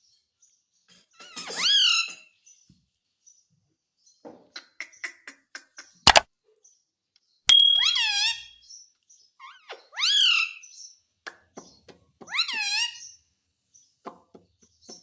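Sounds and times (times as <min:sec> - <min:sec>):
parrot shrill calls: 0:07.5 - 0:08.6, 0:09.4 - 0:10.7, 0:12.3 - 0:13.1.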